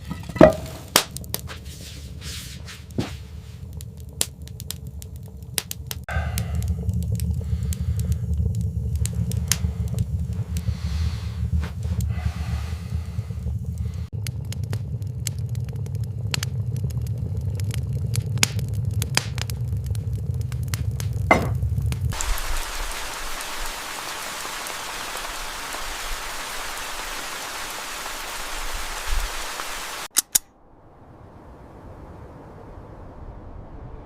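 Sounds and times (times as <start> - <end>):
low rumble: 0.0 - 23.6, 30.5 - 34.0
steady rain hiss: 0.0 - 30.1
sharp crackles and clicks: 0.0 - 30.6.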